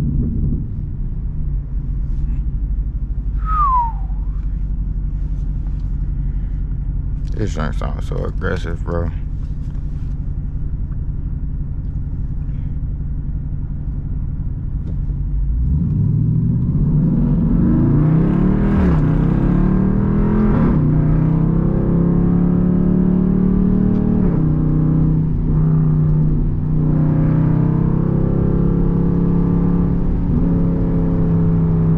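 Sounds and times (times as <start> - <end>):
loud car exhaust revving: 15.4 - 31.9.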